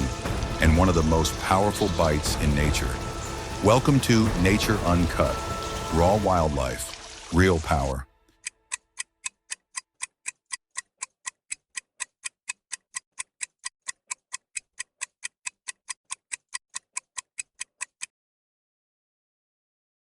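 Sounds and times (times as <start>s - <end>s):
steady ticking: 0.0s - 6.4s, 8.4s - 18.1s.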